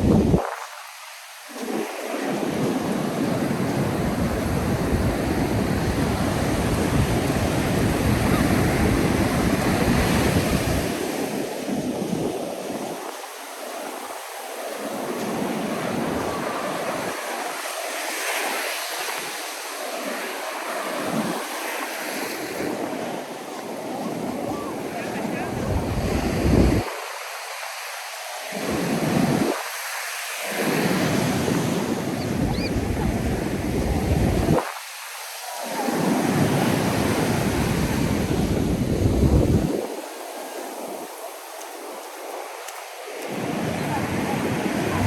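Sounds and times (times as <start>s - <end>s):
wind buffeting microphone: 0.0s - 0.7s, 2.6s - 11.1s, 24.0s - 26.9s, 30.8s - 34.8s, 36.0s - 40.0s, 43.2s - 45.0s
ocean surf on beach: 0.0s - 45.0s.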